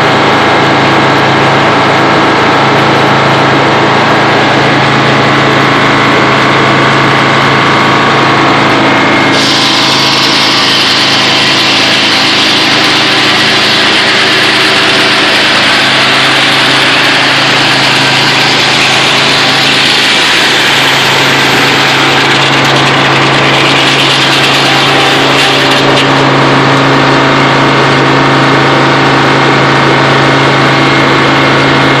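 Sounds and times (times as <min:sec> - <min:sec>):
diesel engine running: 0:00.0 - 0:32.0
saw blade cutting log: 0:09.3 - 0:32.0.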